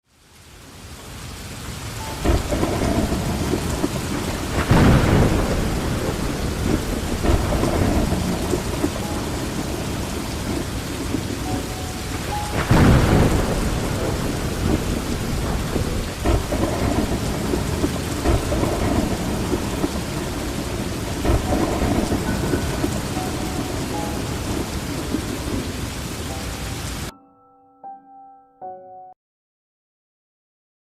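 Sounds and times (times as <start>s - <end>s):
heavy rain on leaves: 0.0s - 27.1s
low rumbling surges: 2.2s - 26.1s.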